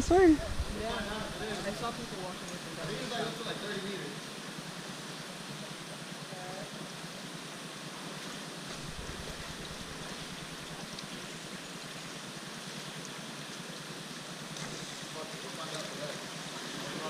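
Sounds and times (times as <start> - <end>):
stream water rushing: 1.1 - 17.0
low rumble: 8.7 - 10.9.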